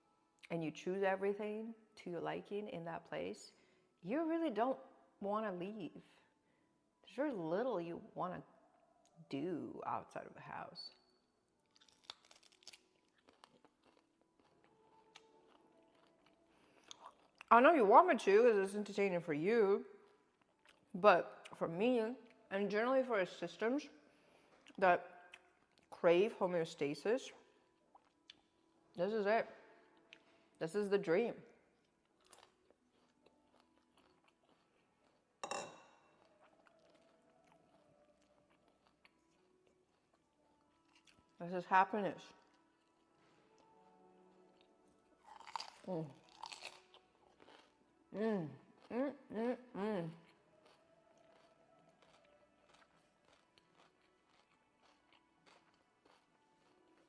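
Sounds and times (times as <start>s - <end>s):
faint chewing of food: 10.8s - 17.5s, 19.9s - 21.6s, 24.1s - 26.0s, 27.4s - 28.9s, 29.6s - 30.6s, 31.7s - 41.4s, 42.2s - 49.3s, 50.0s - 57.0s
tableware clink: 35.4s - 36.1s.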